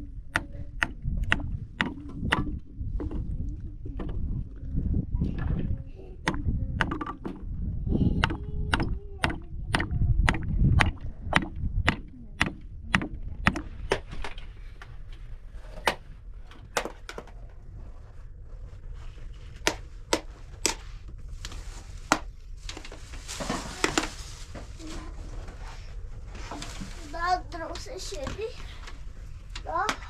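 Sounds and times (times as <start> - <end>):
sharp knocks: 8.2 - 14.3.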